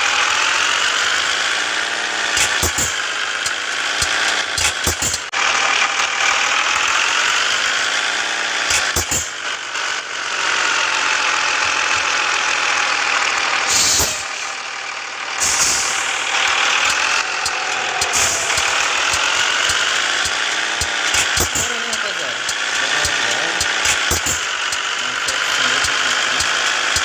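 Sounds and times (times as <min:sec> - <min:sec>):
truck engine running: 0:00.0 - 0:27.0
knocks and rattles: 0:02.3 - 0:05.3, 0:08.7 - 0:09.4, 0:16.1 - 0:25.0.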